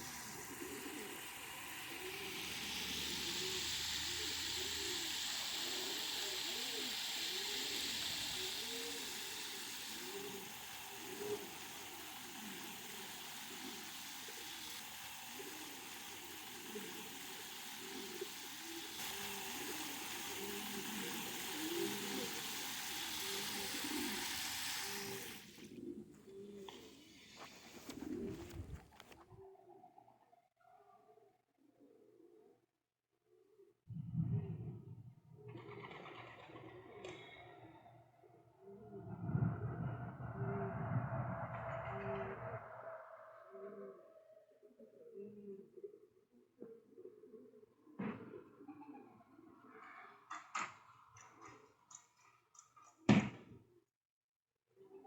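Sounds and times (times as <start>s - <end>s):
steady hiss: 0.0s - 29.2s
pigeons cooing: 0.0s - 30.2s, 35.4s - 51.7s.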